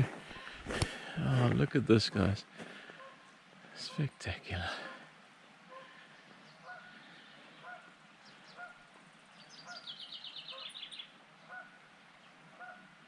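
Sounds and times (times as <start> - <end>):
waterfowl honking: 2.9 - 3.3, 5.7 - 6.0, 6.6 - 7.0, 7.6 - 7.9, 8.5 - 8.8, 9.6 - 10.8, 11.4 - 11.8, 12.5 - 12.9.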